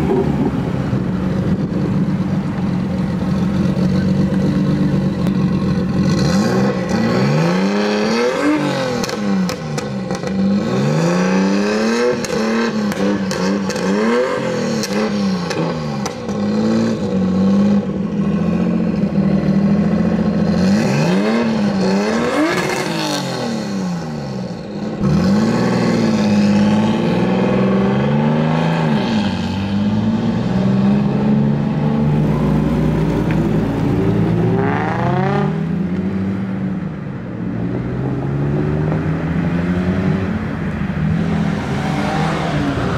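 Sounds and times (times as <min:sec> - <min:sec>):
car engines revving: 0:00.0 - 0:42.9
engine idling: 0:01.0 - 0:06.1.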